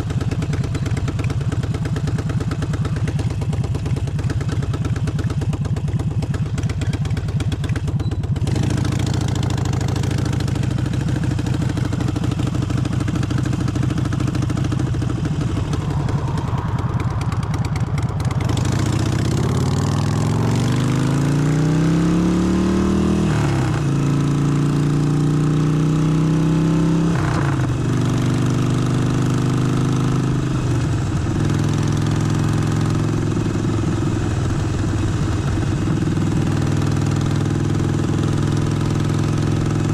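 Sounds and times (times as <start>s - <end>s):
motorcycle engine idling: 0.0s - 20.0s, 30.6s - 39.9s
motorcycle accelerating: 0.0s - 39.9s.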